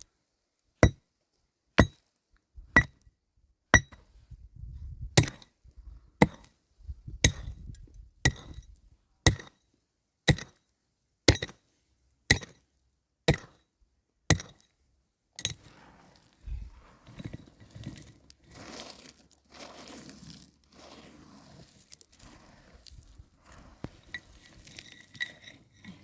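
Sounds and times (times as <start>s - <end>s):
hand tool striking wood: 1.8s - 2.0s, 3.8s - 4.0s, 5.2s - 5.5s, 9.3s - 9.5s, 10.3s - 10.6s, 11.3s - 11.6s, 12.3s - 12.6s, 13.3s - 13.6s, 14.3s - 14.6s
soft rustling: 15.6s - 26.0s.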